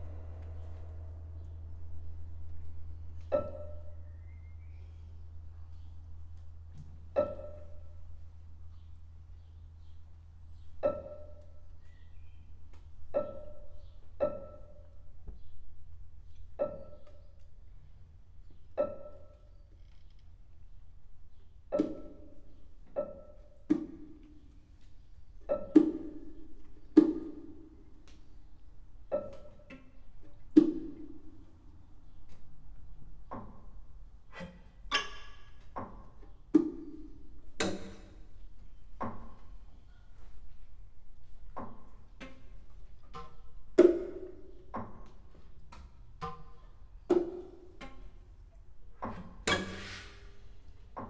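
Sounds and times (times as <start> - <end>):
sparse plucked notes: 0.0 - 4.3
faint low hum: 0.0 - 22.4.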